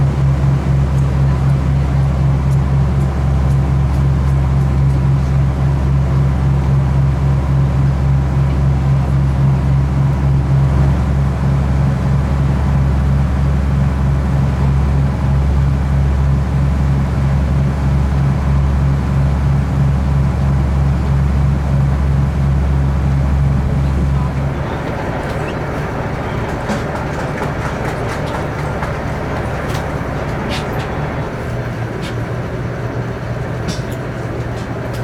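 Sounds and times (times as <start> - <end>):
ship engine drone: 21.6 - 35.0.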